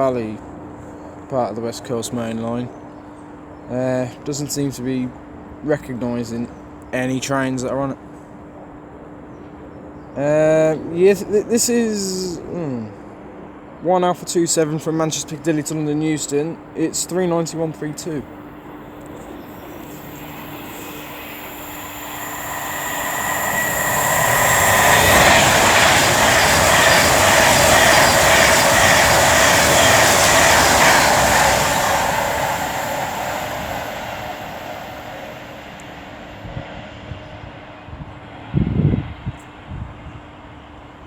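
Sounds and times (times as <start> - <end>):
electric train passing: 0.0 - 41.0.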